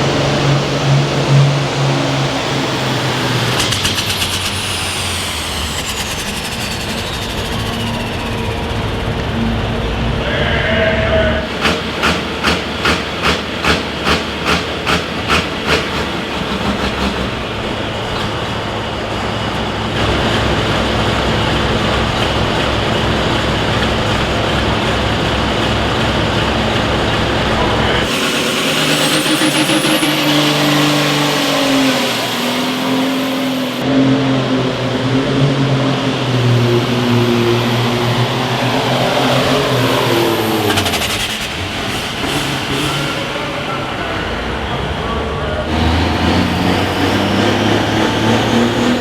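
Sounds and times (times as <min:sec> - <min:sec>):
pulling vehicle engine popping: 0:00.0 - 0:10.1, 0:11.4 - 0:33.8
engine with high whine: 0:00.0 - 0:49.0.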